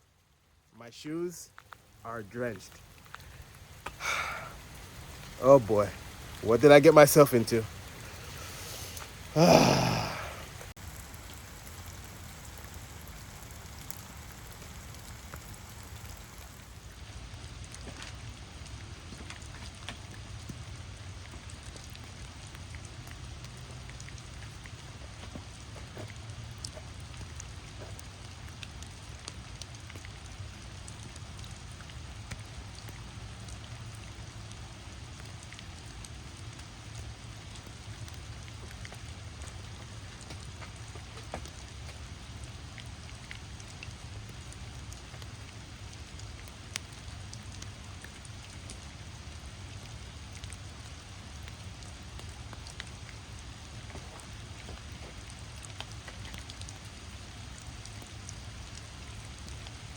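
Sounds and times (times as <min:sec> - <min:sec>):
close raindrops landing: 0:00.0 - 0:59.9
heavy rain hissing: 0:00.1 - 0:17.5.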